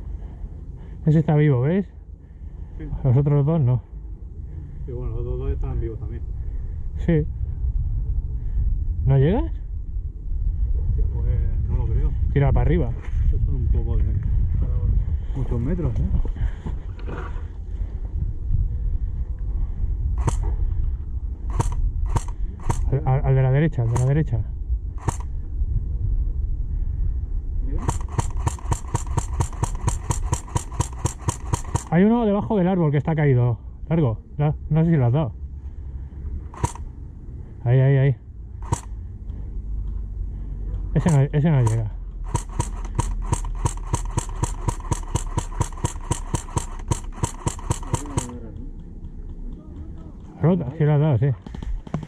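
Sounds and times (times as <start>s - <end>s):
low wind rumble: 0.0s - 52.0s
airsoft gun firing rapidly: 20.2s - 20.5s, 21.5s - 22.9s, 23.8s - 24.2s, 25.0s - 25.2s, 27.8s - 32.0s, 36.6s - 36.8s, 38.6s - 38.9s, 41.0s - 48.4s
camera handling noise: 20.2s - 20.5s, 21.5s - 22.9s, 23.8s - 24.2s, 25.0s - 25.3s, 27.8s - 32.0s, 36.5s - 36.9s, 38.6s - 38.9s, 41.0s - 48.4s.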